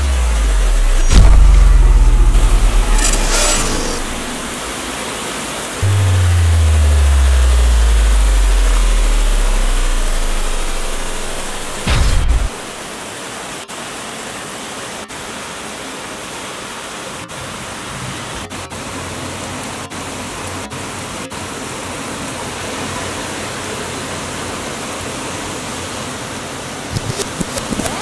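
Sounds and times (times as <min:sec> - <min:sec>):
low thump: 0:00.0 - 0:04.7, 0:05.8 - 0:12.9
heavy rain: 0:05.8 - 0:12.9.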